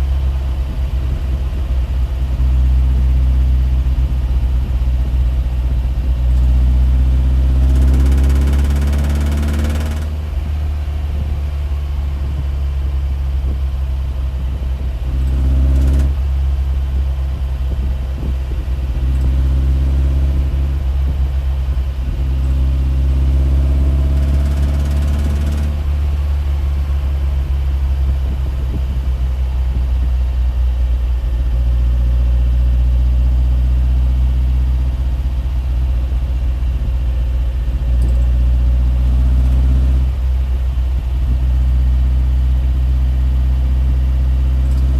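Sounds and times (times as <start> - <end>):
low mechanical drone: 0.0 - 44.9.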